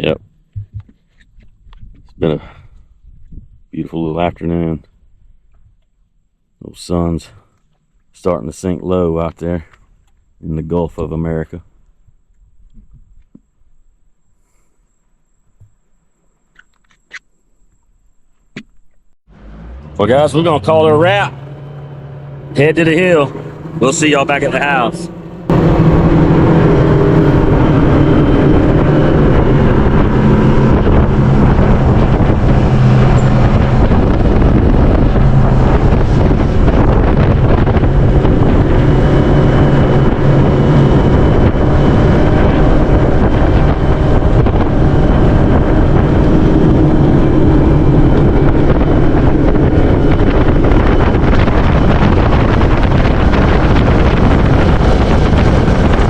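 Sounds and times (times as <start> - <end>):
wind rush on microphone: 0.0 - 5.8, 12.0 - 13.4, 22.6 - 56.0
motorboat engine drone: 19.3 - 56.0.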